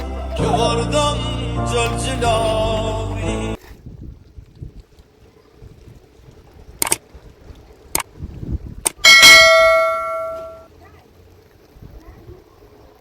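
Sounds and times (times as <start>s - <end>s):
struck metallic ring: 9.1s - 10.6s.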